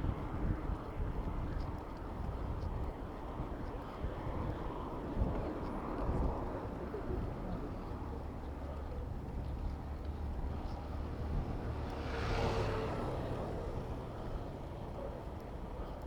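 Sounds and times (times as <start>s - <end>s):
road traffic rumble: 5.7s - 16.0s.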